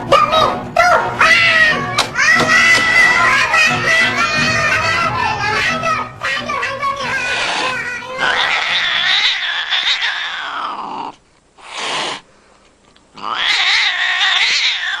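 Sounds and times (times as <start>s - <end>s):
cats yowling: 0.8s - 6.4s, 7.1s - 11.2s, 13.2s - 15.0s.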